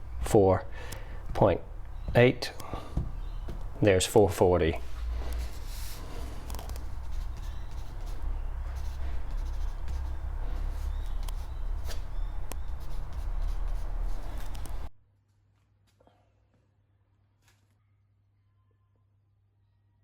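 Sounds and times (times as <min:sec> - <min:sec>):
pen writing on paper: 0:05.4 - 0:14.8.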